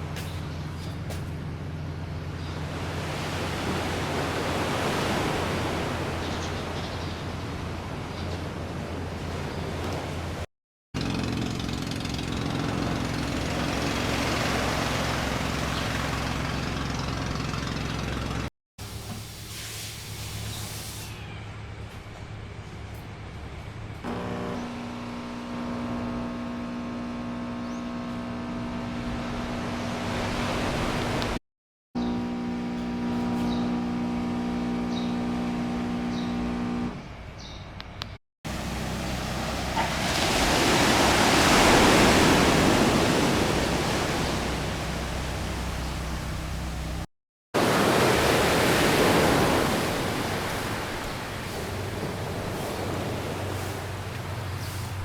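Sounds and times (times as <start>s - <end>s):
vehicle engine droning: 11.0s - 18.5s, 21.4s - 31.4s, 32.0s - 41.2s, 42.0s - 47.1s.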